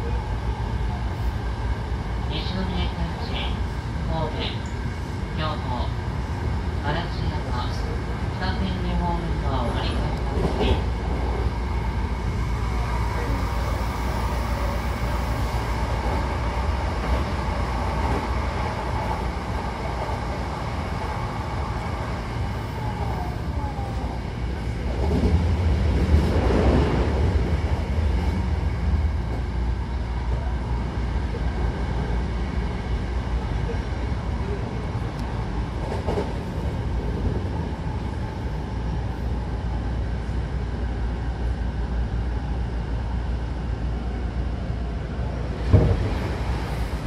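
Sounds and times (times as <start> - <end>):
train running rumble from inside: 0.0 - 47.0.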